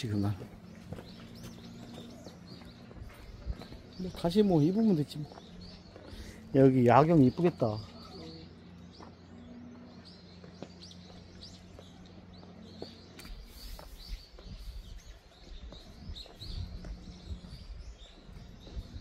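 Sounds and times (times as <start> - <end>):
small birds chirping: 0.0 - 19.0
low rumble on microphone: 13.3 - 19.0.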